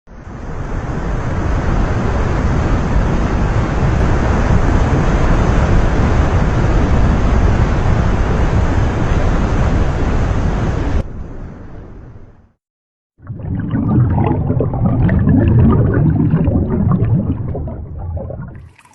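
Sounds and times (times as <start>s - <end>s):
water rushing: 13.2s - 18.9s.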